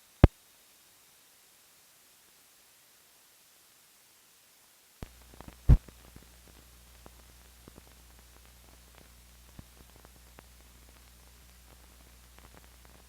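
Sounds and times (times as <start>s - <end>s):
clicks and crackles: 5.0s - 13.0s.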